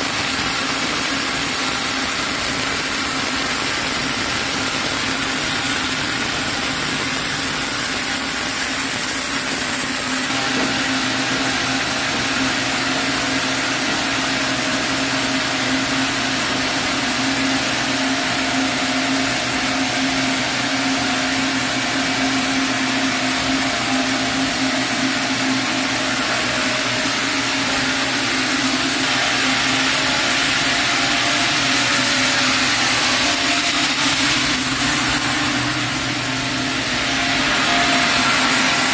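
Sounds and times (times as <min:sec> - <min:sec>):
saw cutting log: 0:26.1 - 0:38.9.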